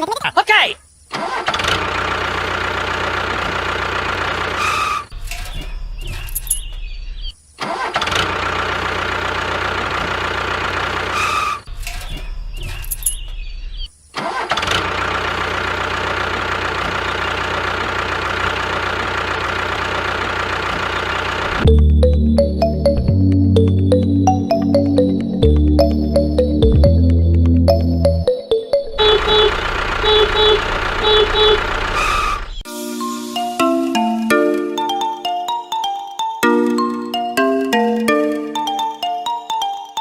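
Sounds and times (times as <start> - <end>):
small tractor engine running: 1.3 - 6.5, 7.8 - 12.4, 14.3 - 21.9, 28.8 - 32.6.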